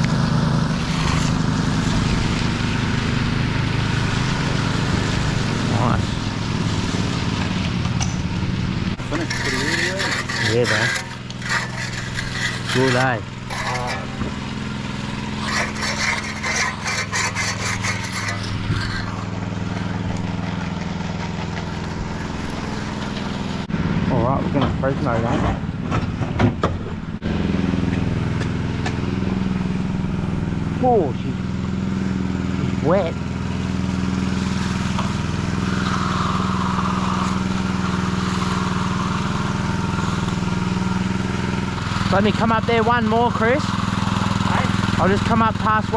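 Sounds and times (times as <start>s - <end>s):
engine running: 0.0s - 45.9s
hand tool scraping wet concrete: 0.7s - 3.2s, 9.0s - 23.7s, 34.0s - 45.7s.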